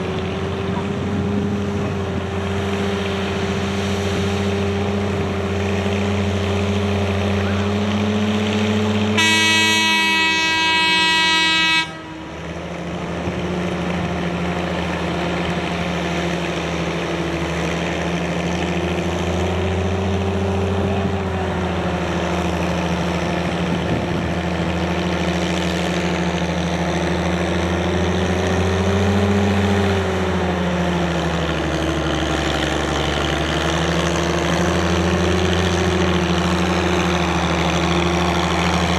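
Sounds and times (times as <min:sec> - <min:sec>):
tractor engine running: 0:00.0 - 0:38.9
horn blowing: 0:09.2 - 0:12.5.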